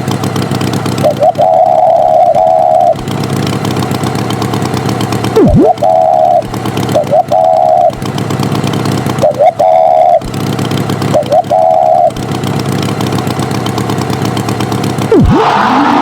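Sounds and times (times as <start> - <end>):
tractor engine drone: 0.0 - 16.0
short warbling tone with chirp: 1.0 - 3.1, 5.3 - 8.0, 9.2 - 10.3, 11.1 - 12.2, 15.1 - 16.0.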